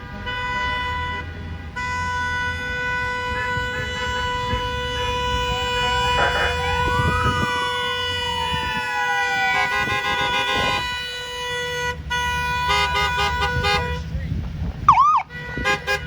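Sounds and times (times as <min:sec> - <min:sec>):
horn honking: 0:00.0 - 0:14.2, 0:14.9 - 0:16.0
trucks rumbling past: 0:00.0 - 0:16.0
vehicle siren wailing: 0:02.0 - 0:12.6, 0:14.9 - 0:15.4.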